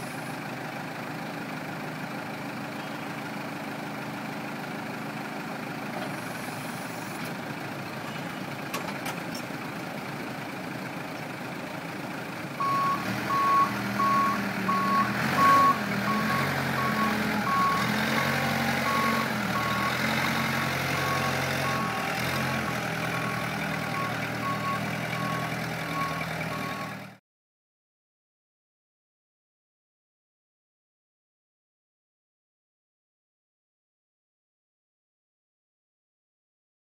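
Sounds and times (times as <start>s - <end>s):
loader engine running: 0.0s - 27.2s
reversing alarm beeping: 12.6s - 27.0s.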